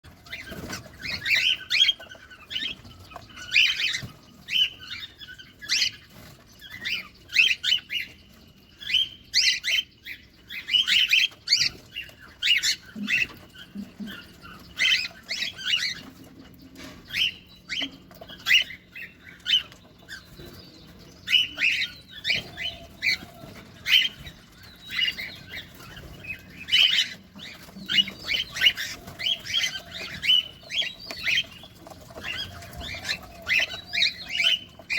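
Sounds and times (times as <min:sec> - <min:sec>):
cockatiels chirping and squawking: 0:00.1 - 0:34.9.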